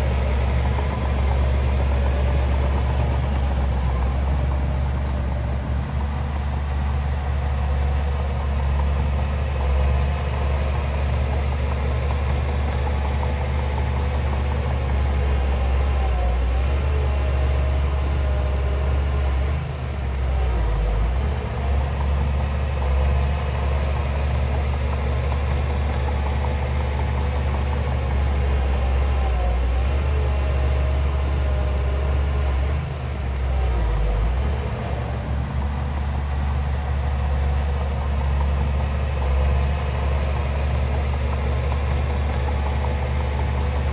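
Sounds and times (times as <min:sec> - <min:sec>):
heavy diesel engine rumbling: 0:00.0 - 0:43.9.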